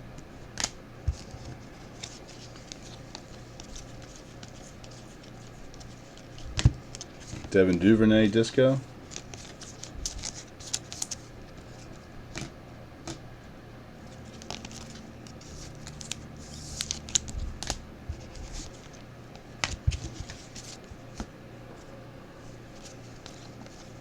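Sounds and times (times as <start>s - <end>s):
trading cards being flipped: 9.0s - 13.2s, 14.2s - 19.0s.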